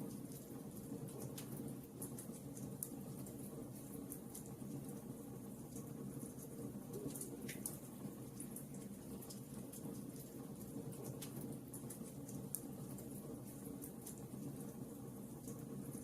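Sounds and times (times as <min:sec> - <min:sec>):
fire crackling and snapping: 0:07.1 - 0:14.7.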